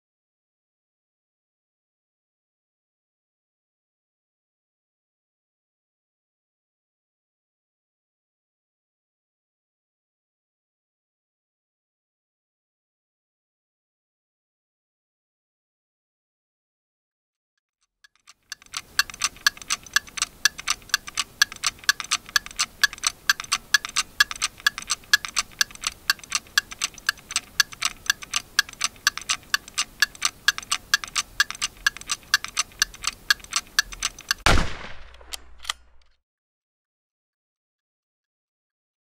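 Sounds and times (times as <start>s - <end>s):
clock ticking rapidly: 18.1s - 34.5s
loud gunshot: 34.4s - 36.0s.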